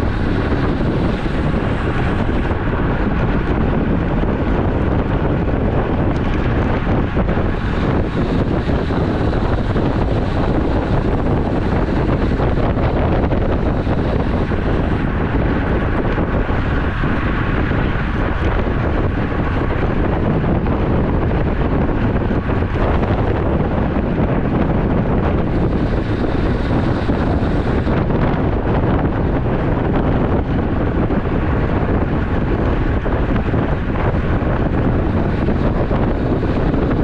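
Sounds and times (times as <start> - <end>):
tyre and road noise: 0.0 - 37.0
wind buffeting microphone: 0.0 - 37.0.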